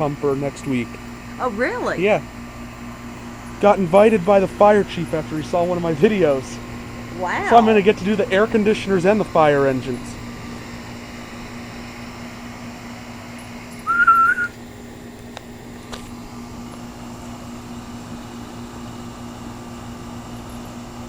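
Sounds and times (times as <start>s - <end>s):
air conditioner humming: 0.0s - 21.0s
short high whistle: 13.8s - 14.6s.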